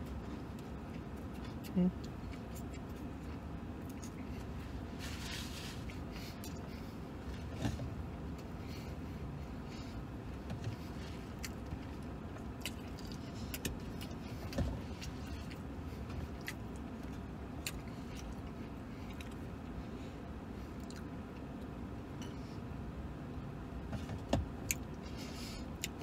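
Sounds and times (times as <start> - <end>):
man chewing: 0.0 - 4.7, 5.8 - 7.8, 8.4 - 19.8, 20.6 - 21.6, 24.6 - 26.0
vehicle cab rumble: 0.0 - 26.0.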